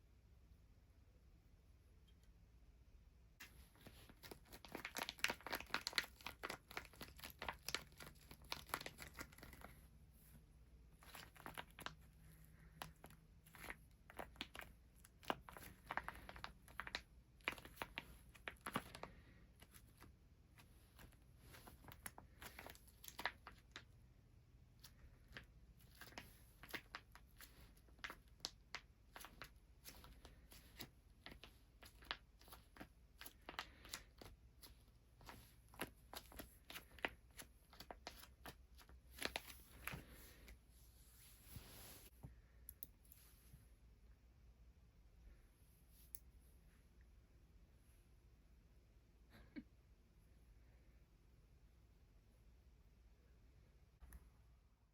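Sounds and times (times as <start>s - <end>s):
small clicks and crackles: 3.4s - 9.8s.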